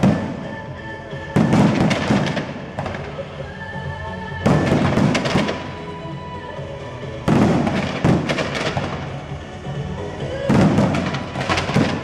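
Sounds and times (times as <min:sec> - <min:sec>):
fireworks exploding: 0:00.0 - 0:00.7, 0:01.3 - 0:03.4, 0:04.4 - 0:05.9, 0:07.2 - 0:09.4, 0:10.4 - 0:12.0
fireworks crackling: 0:00.0 - 0:03.4, 0:04.3 - 0:06.1, 0:07.2 - 0:12.0
music playing: 0:00.0 - 0:12.0.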